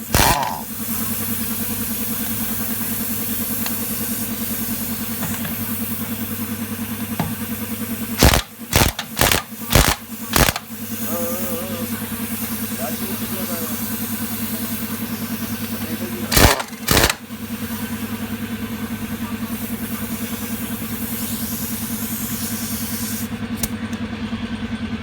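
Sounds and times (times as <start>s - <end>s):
short loud bursts: 0.0s - 0.6s, 8.2s - 10.7s, 16.3s - 17.2s
engine running steadily: 0.0s - 25.0s.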